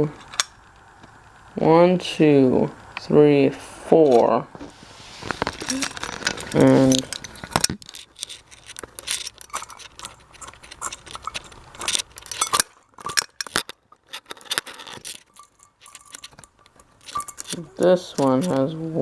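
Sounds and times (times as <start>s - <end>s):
bead chain jangling: 5.6s - 17.6s.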